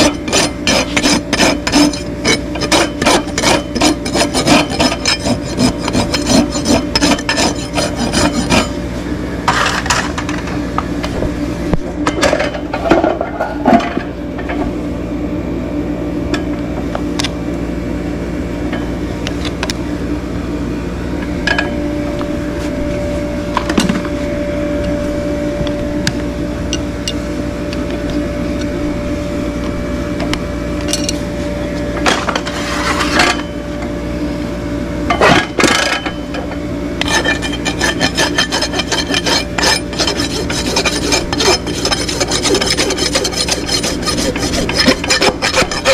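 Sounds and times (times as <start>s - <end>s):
hand tools scraping a hoof: 0.0s - 8.8s, 32.1s - 33.4s, 37.0s - 45.9s
rasp strokes on hoof: 0.0s - 8.8s, 37.0s - 45.9s
steady low hum: 0.0s - 45.9s.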